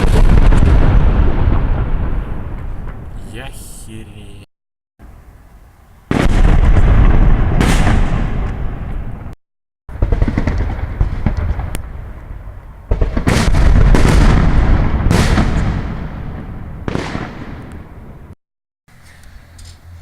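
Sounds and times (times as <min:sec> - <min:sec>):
fireworks booms with rumble: 0:00.0 - 0:03.6, 0:06.1 - 0:18.4.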